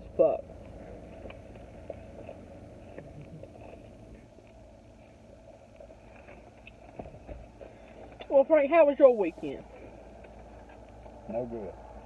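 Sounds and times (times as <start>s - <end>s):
low steady hum: 0.0s - 12.0s
eating and handling food: 0.4s - 8.2s.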